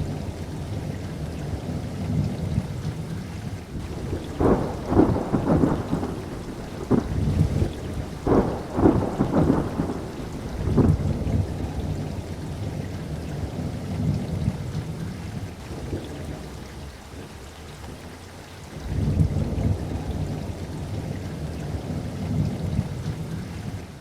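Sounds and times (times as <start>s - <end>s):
rain: 0.0s - 24.0s
thunder rumbling and cracking: 3.7s - 15.0s.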